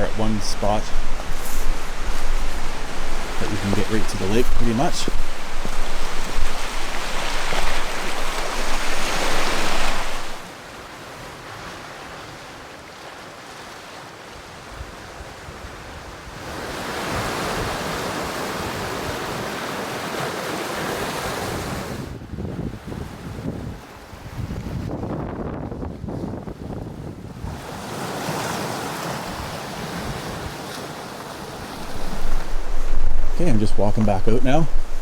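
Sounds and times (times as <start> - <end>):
wind on microphone: 0.0 - 10.5, 21.5 - 27.8, 31.6 - 35.0
waves washing onto shore: 0.0 - 22.2, 27.3 - 35.0.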